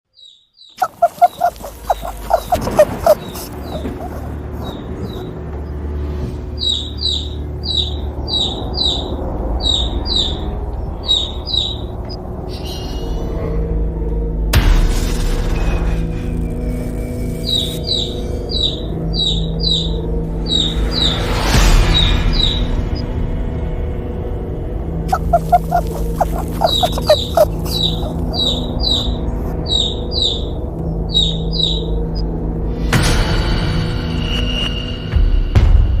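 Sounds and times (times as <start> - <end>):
chick peeping: 0.8 - 5.3, 25.1 - 30.4
low music drone: 1.3 - 34.2.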